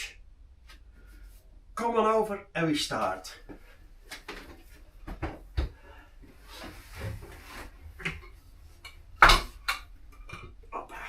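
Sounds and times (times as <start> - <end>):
rubbing sliding sound: 6.4 - 8.0.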